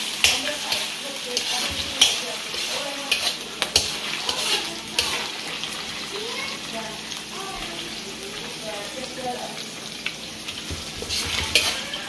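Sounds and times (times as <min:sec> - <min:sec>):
liver sizzling in hot oil: 0:00.0 - 0:12.0
metal spatula scraping a wok: 0:00.2 - 0:05.8, 0:10.9 - 0:12.0.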